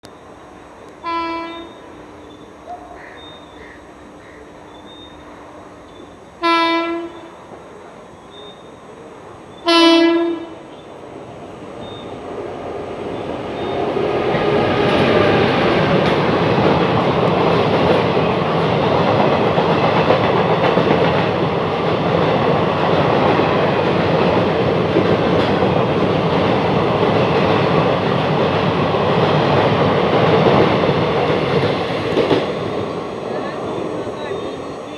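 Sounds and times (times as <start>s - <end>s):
train wheels rushing on rails: 0.2s - 34.9s
locomotive horn blasts: 1.0s - 2.0s, 6.4s - 7.3s, 9.6s - 10.6s.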